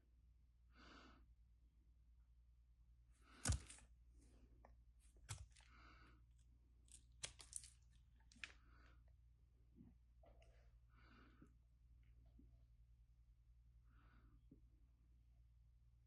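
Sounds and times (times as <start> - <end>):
knife carving soap: 3.1 - 9.2.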